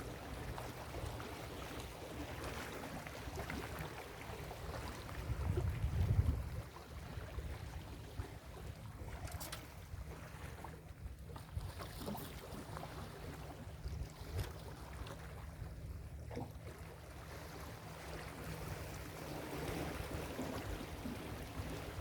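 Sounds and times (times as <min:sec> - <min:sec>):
wind rumbling on microphone: 0:04.6 - 0:10.3.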